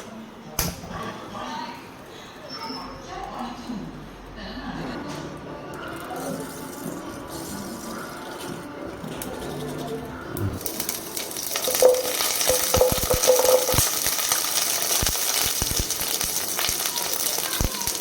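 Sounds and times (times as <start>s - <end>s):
food sizzling in oil: 10.6s - 18.0s.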